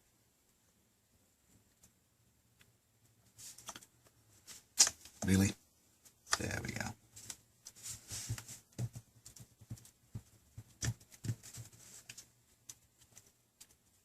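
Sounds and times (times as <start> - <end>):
clicks and taps on plastic: 8.7 - 11.6.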